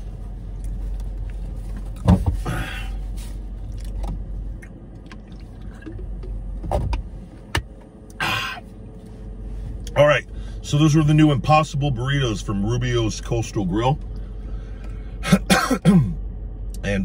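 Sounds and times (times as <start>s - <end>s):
car low hum: 0.0s - 17.0s
man chewing food: 3.6s - 6.4s.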